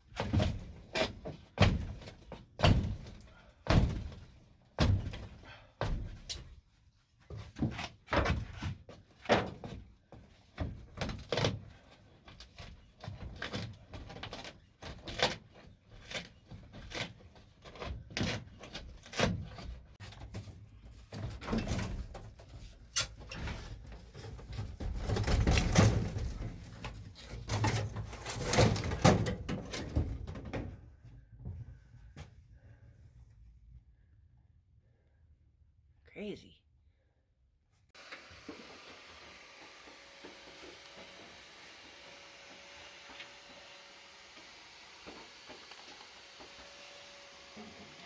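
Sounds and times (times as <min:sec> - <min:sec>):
knocks and clatter on van panels: 0:00.2 - 0:06.3
rustling and scraping: 0:12.3 - 0:32.5.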